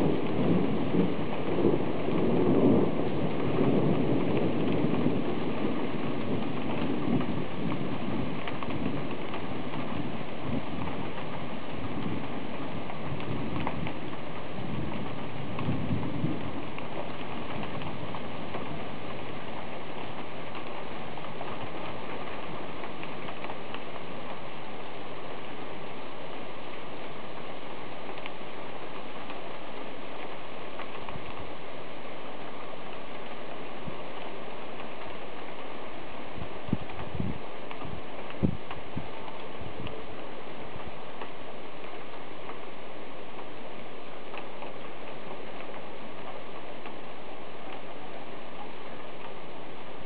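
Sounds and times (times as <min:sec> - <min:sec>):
low rumble of thunder: 0:00.0 - 0:50.0
rain falling steadily: 0:00.0 - 0:50.0
sharp taps of raindrops: 0:00.0 - 0:50.0.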